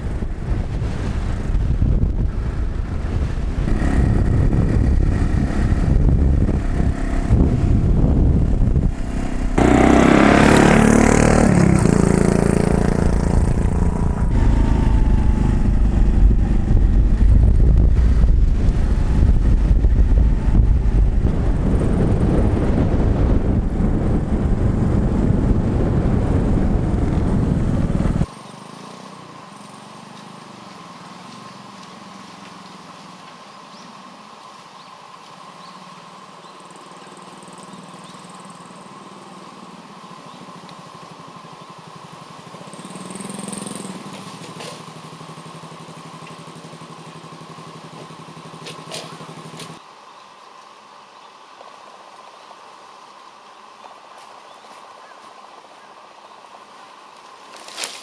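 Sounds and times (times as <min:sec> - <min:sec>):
wind noise rumble: 0:00.0 - 0:28.3
motorcycle engine: 0:01.2 - 0:30.5, 0:38.7 - 0:49.8.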